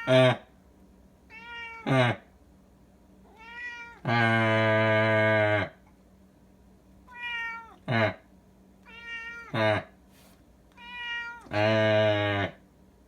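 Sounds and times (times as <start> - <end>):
cat meowing: 1.3 - 2.0, 3.3 - 4.2, 7.1 - 7.9, 8.8 - 9.7, 10.7 - 12.5
man imitating meows: 3.7 - 5.8, 9.1 - 9.9, 11.2 - 12.6.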